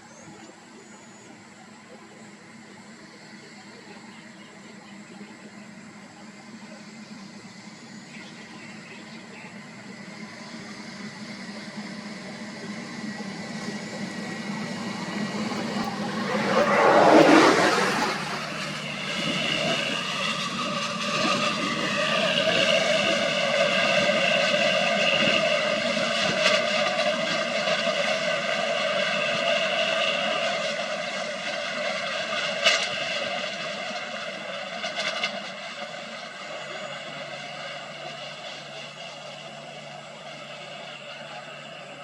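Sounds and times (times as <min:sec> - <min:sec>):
vehicle engine droning whine: 0:00.0 - 0:42.0
loud rush of noise: 0:12.8 - 0:23.4.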